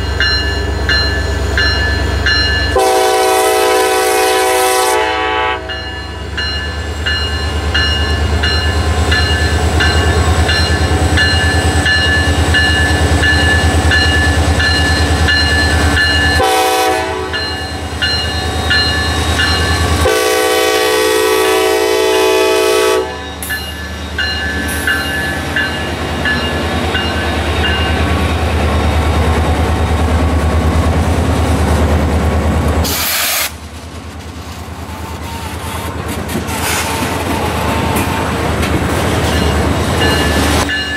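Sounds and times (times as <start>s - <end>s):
locomotive bell ringing: 0.0s - 3.2s, 5.6s - 20.6s, 23.0s - 30.0s, 37.6s - 40.9s
diesel locomotive engine rumbling: 0.0s - 40.9s
train horn blasts: 2.7s - 5.9s, 16.2s - 17.6s, 18.6s - 23.5s, 36.5s - 38.5s.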